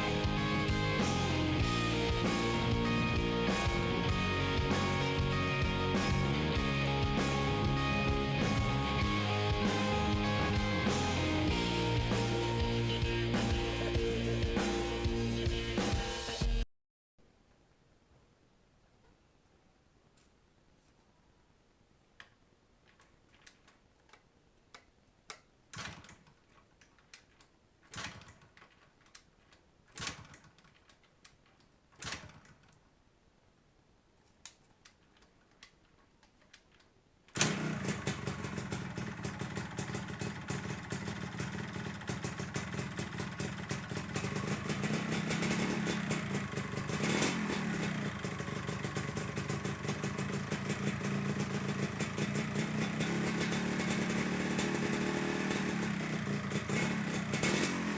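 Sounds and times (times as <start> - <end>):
engine revving: 37.4 - 57.9
two-stroke engine idling: 37.4 - 57.9.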